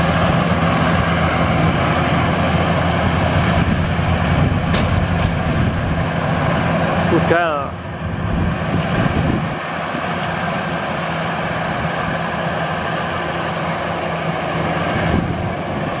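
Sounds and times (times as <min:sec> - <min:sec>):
combine harvester engine drone: 0:00.0 - 0:16.0.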